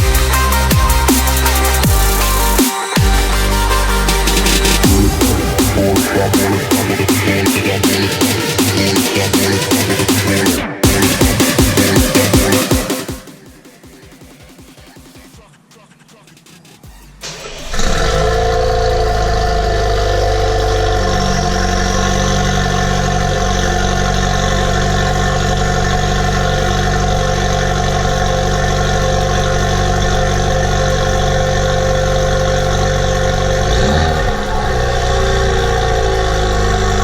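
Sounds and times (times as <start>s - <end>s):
car engine idling: 0.0s - 13.7s, 16.9s - 37.0s.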